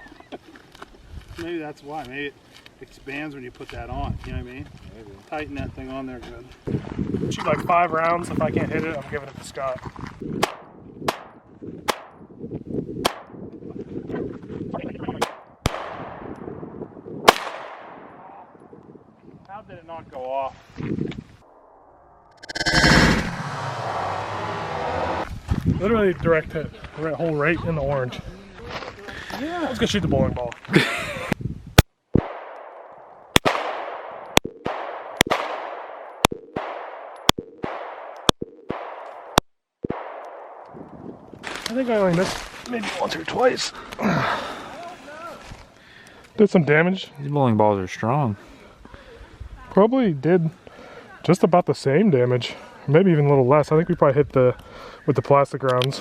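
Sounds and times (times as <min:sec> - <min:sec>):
pistol shots echoing: 0:32.2 - 0:40.7.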